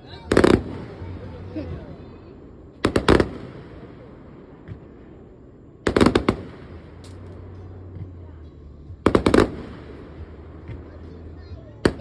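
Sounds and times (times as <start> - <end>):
fireworks bangs: 0.0 - 8.0, 9.0 - 12.0
low background rumble: 0.0 - 12.0.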